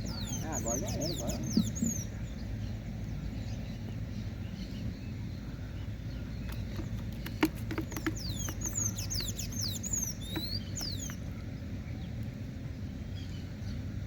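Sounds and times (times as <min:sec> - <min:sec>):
bird chirping rapidly: 0:00.0 - 0:02.8, 0:06.1 - 0:11.4
steady low rumble: 0:00.0 - 0:07.2
sharp clicks: 0:06.5 - 0:11.2.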